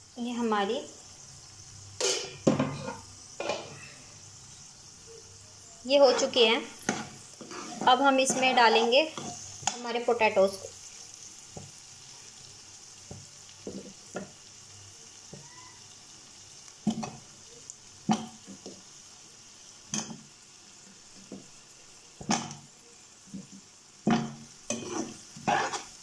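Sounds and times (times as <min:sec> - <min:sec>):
food sizzling in a frying pan: 0:00.0 - 0:26.0
potato chunks landing in pan: 0:22.2 - 0:22.7, 0:23.3 - 0:25.7.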